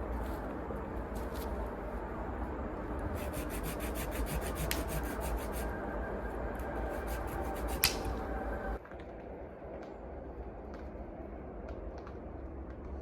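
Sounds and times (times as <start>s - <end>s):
steady low rumble: 0.0s - 13.0s
rapid rhythmic scraping: 3.1s - 8.8s.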